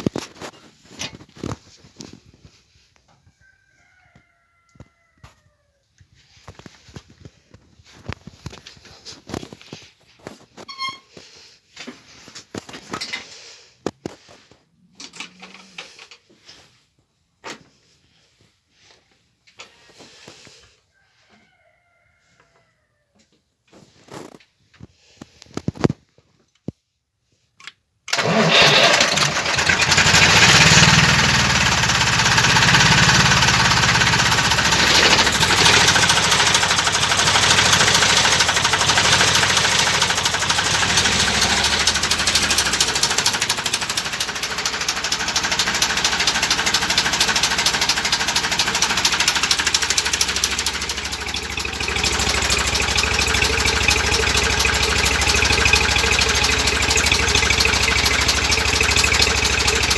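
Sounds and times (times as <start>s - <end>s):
diesel engine starting and idling: 28.1s - 59.9s.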